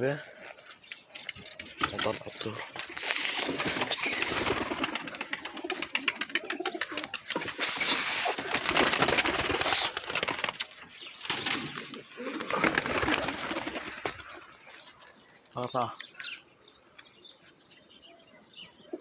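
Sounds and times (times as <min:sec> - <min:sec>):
pigeons cooing: 0:00.2 - 0:14.7
pigeon wings flapping: 0:01.8 - 0:14.4
loud high hiss: 0:07.6 - 0:08.4.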